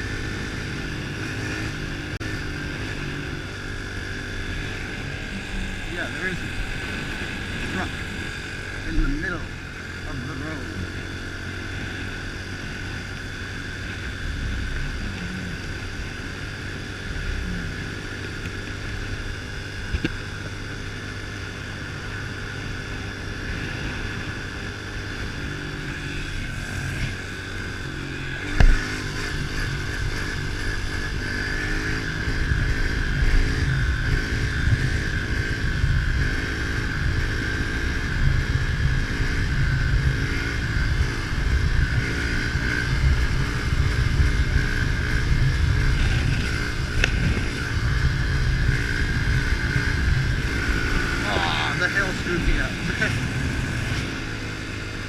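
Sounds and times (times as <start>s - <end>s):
small motorcycle engine running: 0.0s - 55.0s
low rumbling microphone noise: 2.9s - 11.2s, 37.9s - 55.0s.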